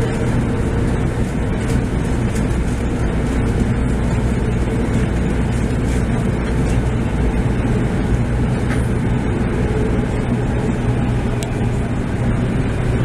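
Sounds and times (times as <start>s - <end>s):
train wheels and traction noise: 0.0s - 13.0s.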